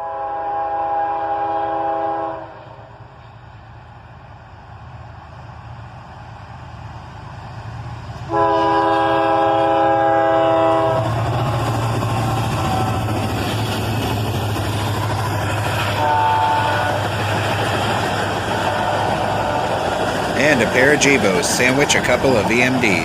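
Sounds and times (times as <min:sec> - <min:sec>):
locomotive air horn blasts: 0:00.0 - 0:02.9, 0:08.3 - 0:11.2, 0:15.9 - 0:17.1, 0:18.6 - 0:19.8
train rumble passing: 0:00.0 - 0:23.0.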